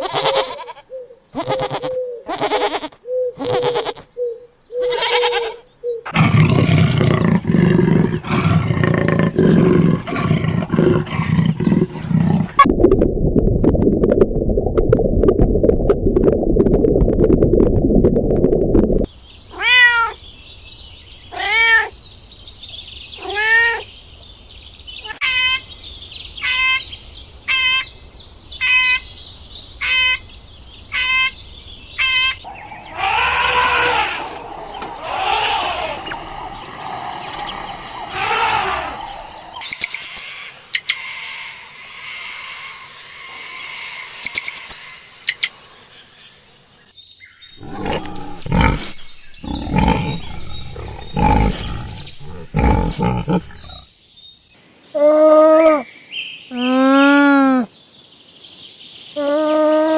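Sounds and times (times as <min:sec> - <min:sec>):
cat meowing: 0:21.4 - 0:21.9.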